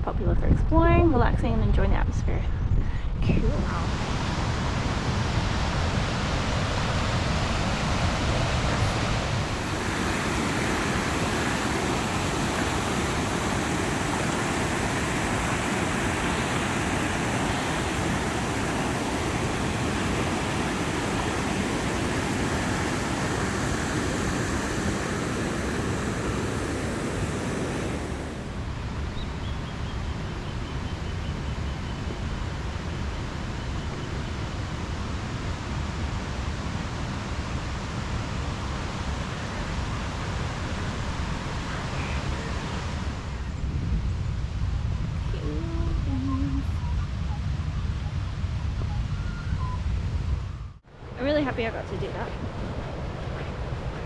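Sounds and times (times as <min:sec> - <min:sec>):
waterfall rushing: 0:03.8 - 0:28.7.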